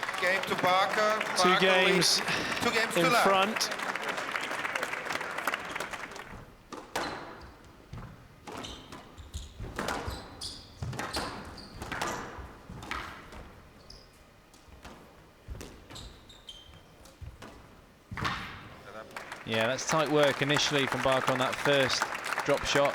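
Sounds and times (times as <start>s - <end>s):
applause: 0.0s - 6.5s, 19.0s - 22.9s
squash ball knocks: 6.7s - 10.2s, 17.4s - 18.7s
shoes squeaking on court: 6.7s - 19.1s.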